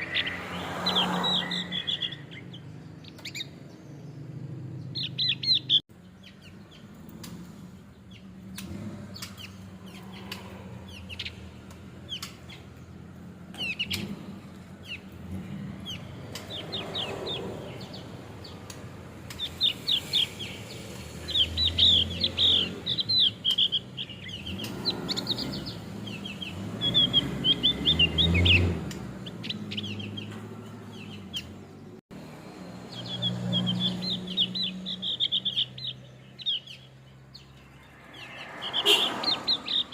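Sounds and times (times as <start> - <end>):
bird chirping high sharp notes: 0.0 - 3.9, 13.5 - 31.6, 32.8 - 39.9.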